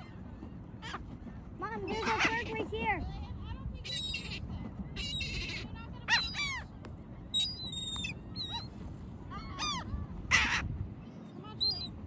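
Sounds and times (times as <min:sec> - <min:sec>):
rough bird squawk: 0:09.6 - 0:10.7.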